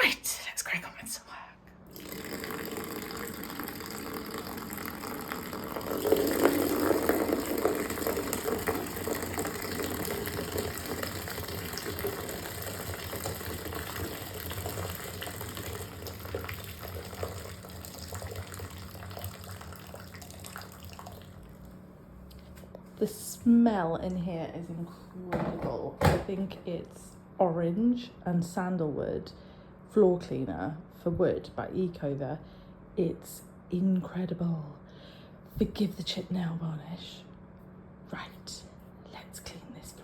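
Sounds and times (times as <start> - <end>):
tap water filling bucket: 1.9 - 22.4.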